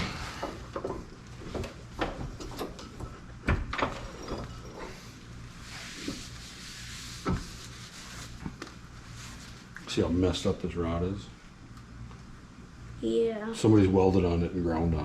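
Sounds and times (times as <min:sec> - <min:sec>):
soft scraping rustle: 0:04.6 - 0:10.1.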